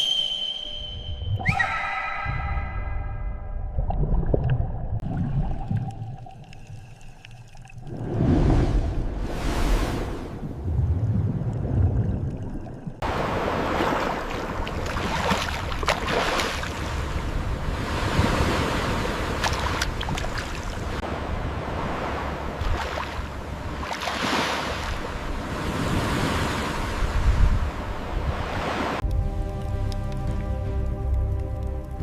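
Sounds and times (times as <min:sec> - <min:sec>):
ocean waves washing: 0:07.8 - 0:29.0.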